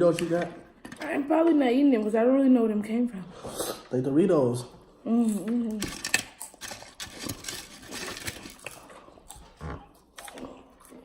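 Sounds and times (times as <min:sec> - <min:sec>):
chips crunching: 0:05.2 - 0:11.0.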